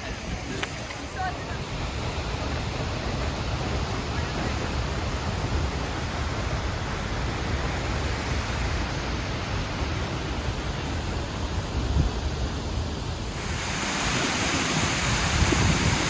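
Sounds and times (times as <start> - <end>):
waterfall rushing: 13.1 - 16.0.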